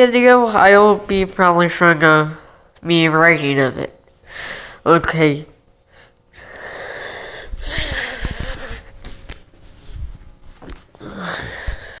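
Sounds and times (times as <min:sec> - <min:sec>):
person breathing hard: 0:04.2 - 0:04.8, 0:05.9 - 0:09.0, 0:11.0 - 0:12.0.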